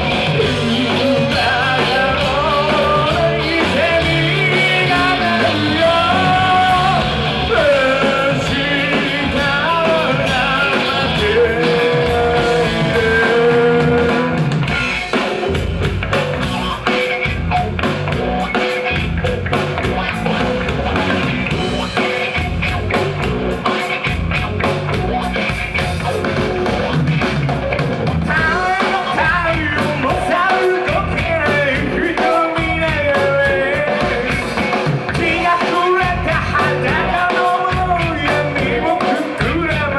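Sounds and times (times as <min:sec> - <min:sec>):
singer singing: 0:00.0 - 0:15.0, 0:28.2 - 0:39.9
rock band playing: 0:00.0 - 0:39.9.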